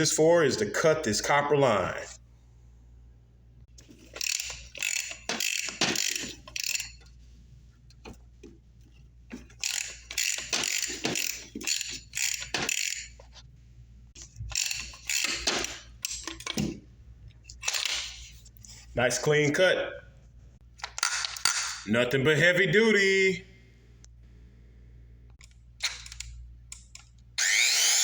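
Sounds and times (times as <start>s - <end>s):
ratchet clicking: 4.1s - 7.0s, 9.5s - 13.2s, 14.2s - 16.3s.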